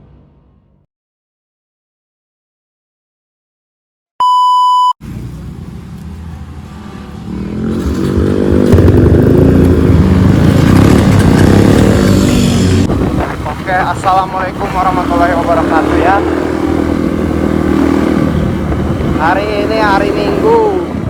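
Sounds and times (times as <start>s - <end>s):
short electronic beep: 4.2s - 5.0s
motorcycle engine revving: 5.0s - 21.0s.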